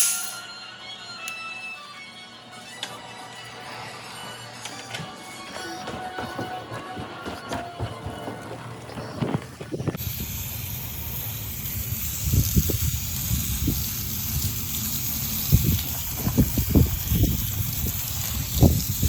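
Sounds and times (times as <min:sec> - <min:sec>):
hose spraying water: 0:10.0 - 0:19.0.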